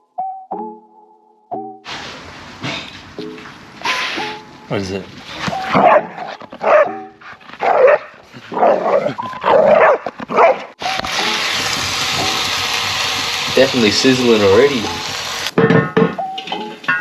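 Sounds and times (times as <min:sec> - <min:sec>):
dog barking and whining: 0:05.4 - 0:10.8
food sizzling in a pan: 0:10.8 - 0:15.5.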